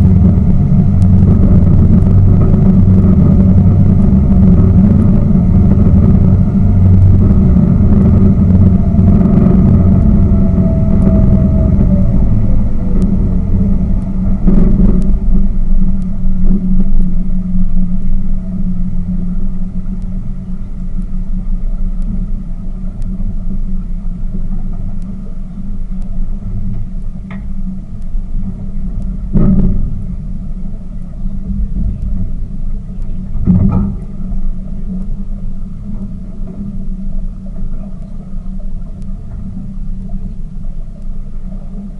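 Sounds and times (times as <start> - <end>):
boat engine running: 0.0 - 41.9.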